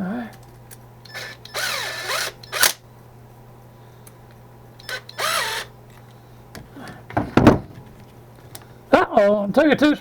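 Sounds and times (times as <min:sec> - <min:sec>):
power driver tightening screw: 0:01.1 - 0:02.8, 0:04.8 - 0:05.7
low handling thump: 0:07.1 - 0:07.8.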